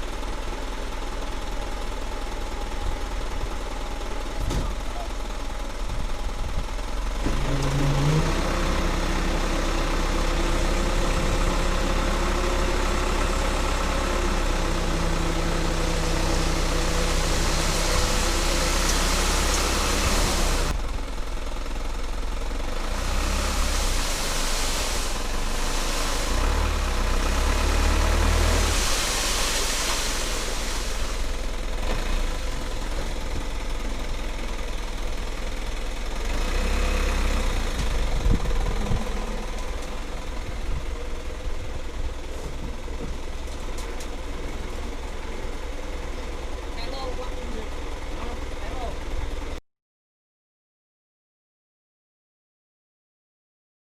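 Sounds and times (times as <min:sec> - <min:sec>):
diesel truck engine running: 0:00.0 - 0:49.6
loud rushing of sand unloading: 0:06.7 - 0:20.8, 0:22.6 - 0:33.6.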